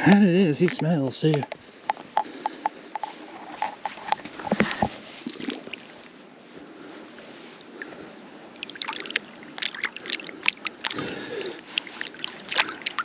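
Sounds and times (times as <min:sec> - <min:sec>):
river water sloshing: 0:04.4 - 0:06.3, 0:07.0 - 0:13.0.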